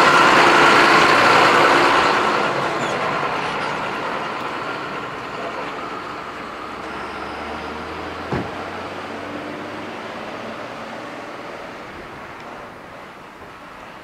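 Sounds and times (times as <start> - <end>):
wood chipper running: 0.0 - 7.0.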